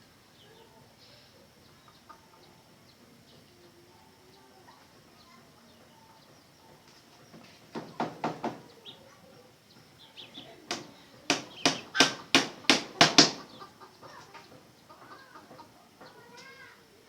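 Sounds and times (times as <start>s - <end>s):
sharp knocks: 7.7s - 8.6s, 10.7s - 13.6s
junglefowl clucking: 11.4s - 16.3s.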